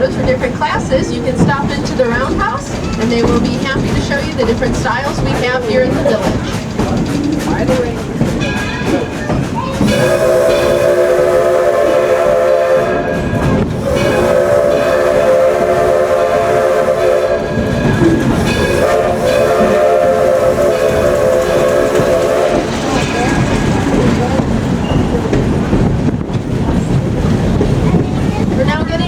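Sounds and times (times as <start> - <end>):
rumble of running train: 0.0 - 29.0
steam locomotive chime whistle: 8.4 - 23.8.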